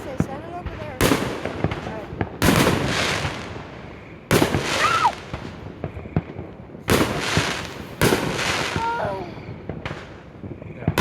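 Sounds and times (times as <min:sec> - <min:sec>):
fireworks booming: 0:00.0 - 0:11.0
fireworks pops and cracks: 0:00.0 - 0:11.0.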